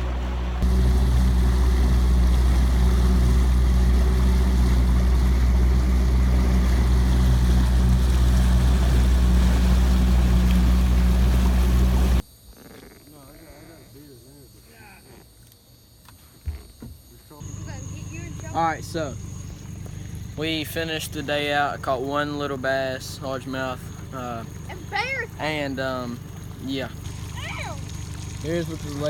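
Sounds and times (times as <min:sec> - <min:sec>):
engine drone: 0:00.0 - 0:12.2, 0:17.4 - 0:29.0
even hiss: 0:25.4 - 0:29.0.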